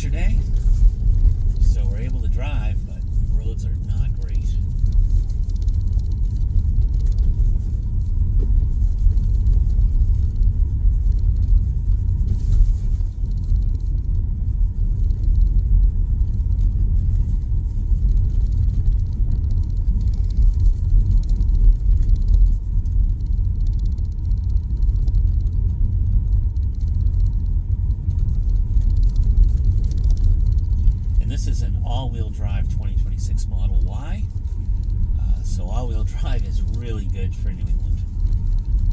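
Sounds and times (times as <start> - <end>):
tyres rumbling on snowy road: 0.0 - 38.9.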